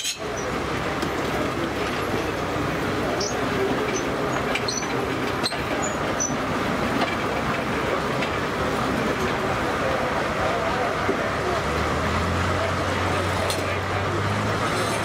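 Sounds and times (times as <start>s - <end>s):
sawmill machinery rumble and clatter: 0.0s - 15.0s
high squeaks and clicks: 3.2s - 6.4s.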